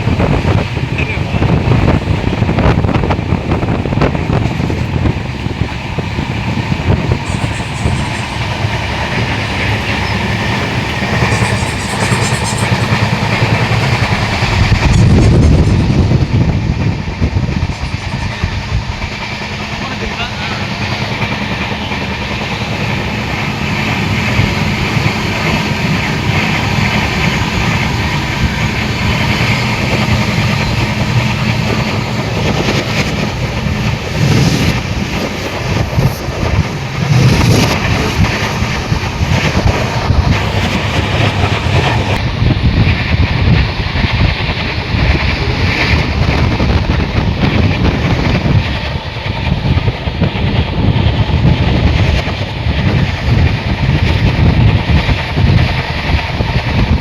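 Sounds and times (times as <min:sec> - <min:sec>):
train rumbling clatter on track: 0:00.0 - 0:57.0.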